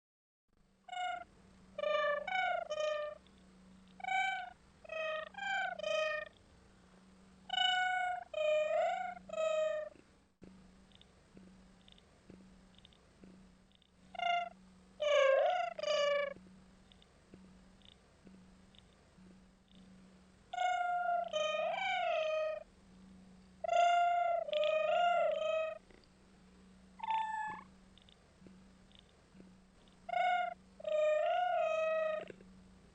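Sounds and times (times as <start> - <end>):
faint low hum: 0.6 - 32.9
cat meowing: 0.9 - 1.2, 20.6 - 22.6, 23.7 - 25.8, 27.0 - 27.7, 30.1 - 32.3.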